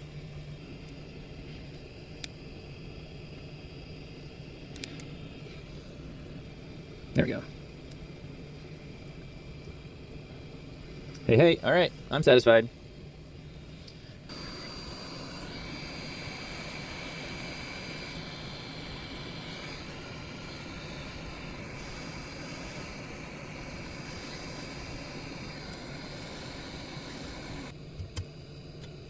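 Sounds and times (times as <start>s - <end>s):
electric blower running: 14.3s - 28.2s.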